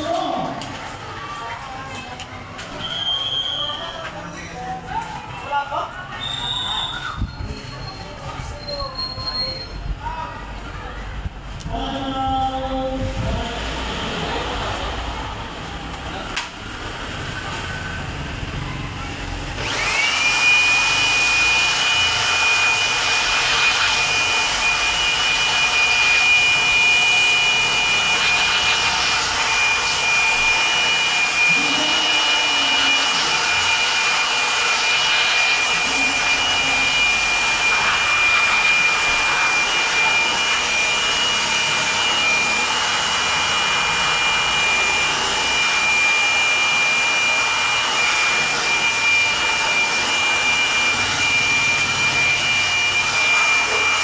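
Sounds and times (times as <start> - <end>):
electric motor whine: 19.4 - 54.0
loud hiss: 19.8 - 42.6.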